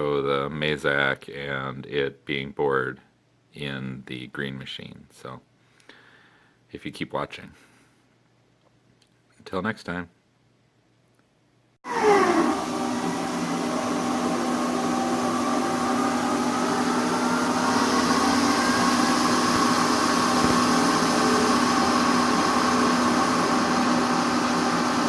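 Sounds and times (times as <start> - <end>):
machine tool running: 11.9 - 25.0.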